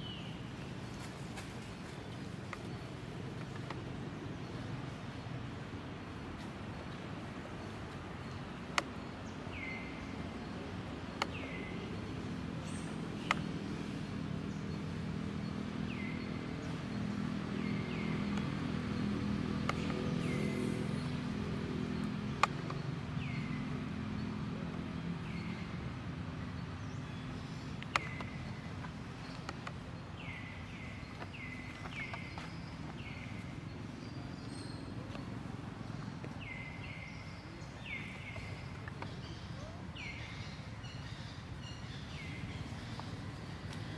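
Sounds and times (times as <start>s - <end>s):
sharp clicks: 27.8s - 29.8s.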